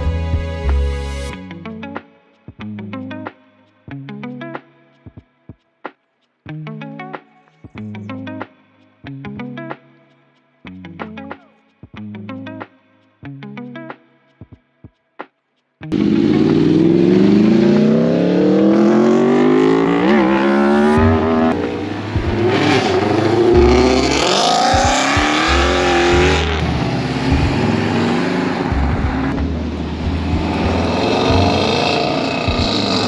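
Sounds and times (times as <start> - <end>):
car engine revving: 15.9 - 33.0.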